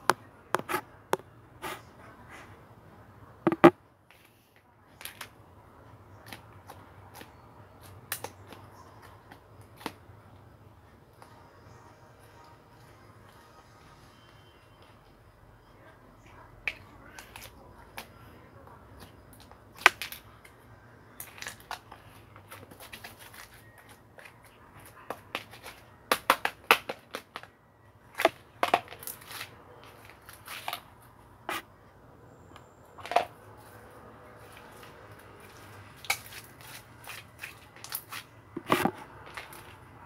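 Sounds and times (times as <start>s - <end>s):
objects being handled: 3.5s - 4.4s, 33.0s - 39.8s.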